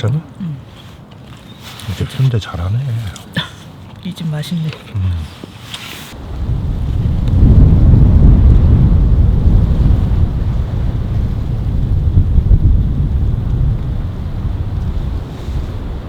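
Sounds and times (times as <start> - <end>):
wind gusting against microphone: 6.1 - 16.0.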